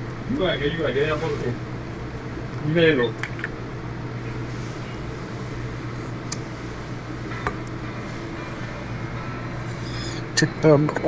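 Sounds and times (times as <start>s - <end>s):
machine hum with fan rush: 0.0s - 11.0s.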